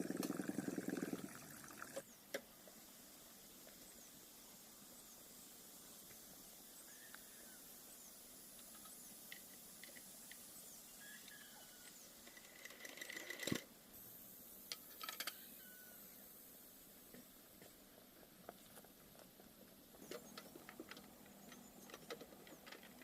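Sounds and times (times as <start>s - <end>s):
background hiss: 0.0s - 23.0s.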